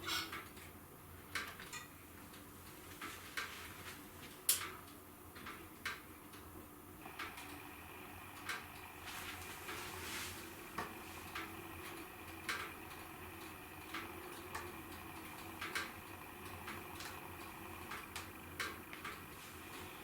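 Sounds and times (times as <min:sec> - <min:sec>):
wood fire crackling and popping: 0:00.2 - 0:20.0.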